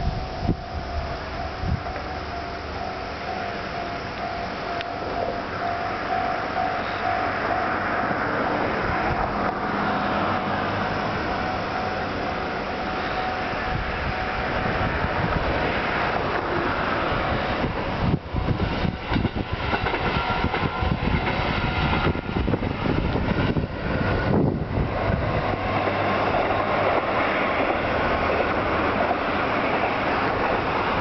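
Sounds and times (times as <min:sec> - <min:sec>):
railcar running noise: 0:00.0 - 0:31.0
train wheels clacking on rail joints: 0:14.8 - 0:31.0.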